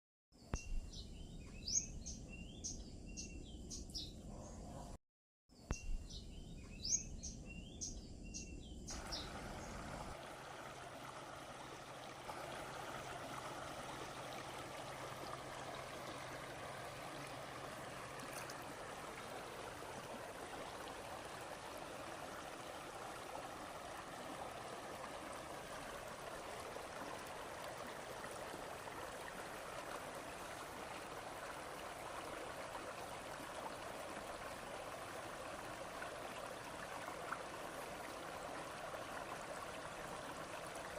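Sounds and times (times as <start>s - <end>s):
running water: 8.9s - 40.9s.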